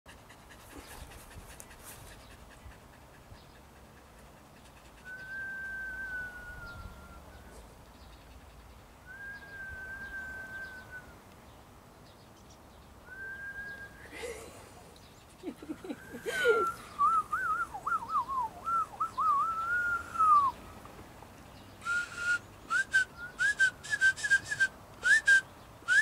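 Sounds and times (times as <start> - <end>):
person whistling long notes: 5.1 - 7.4, 9.1 - 11.1, 13.1 - 14.1, 16.3 - 20.6, 21.8 - 26.0.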